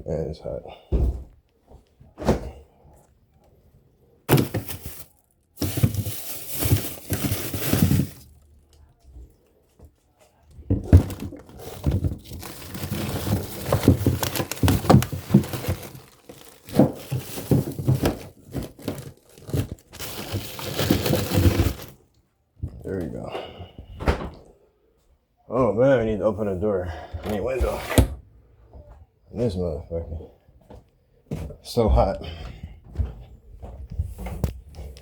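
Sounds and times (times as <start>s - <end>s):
clothing rustling and crinkling: 4.3s - 22.0s.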